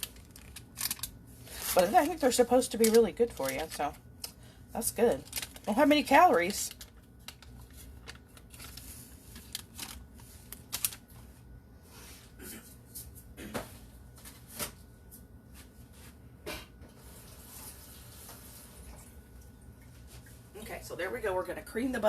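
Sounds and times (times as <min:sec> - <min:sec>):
packaging rustling: 0:00.0 - 0:04.4, 0:05.1 - 0:11.3.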